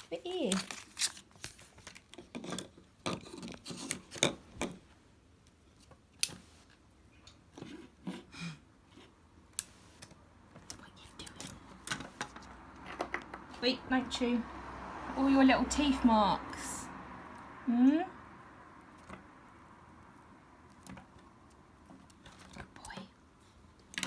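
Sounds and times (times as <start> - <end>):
squirrel gnawing: 15.7 - 24.0.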